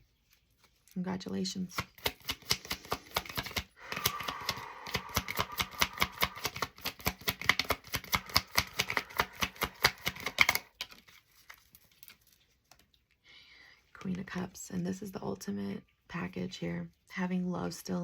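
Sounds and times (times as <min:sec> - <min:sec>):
cards being shuffled by hand: 0:01.7 - 0:12.9.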